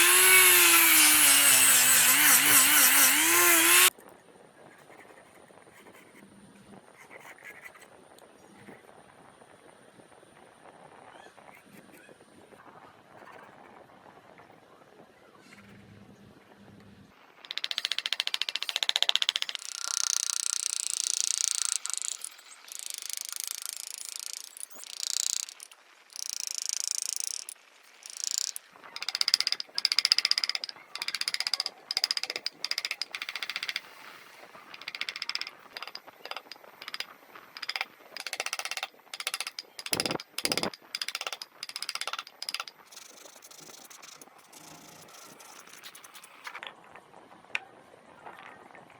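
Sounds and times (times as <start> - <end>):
tool scraping wood: 0.0 - 3.9, 28.1 - 46.6
sharp knocks: 34.8 - 42.7.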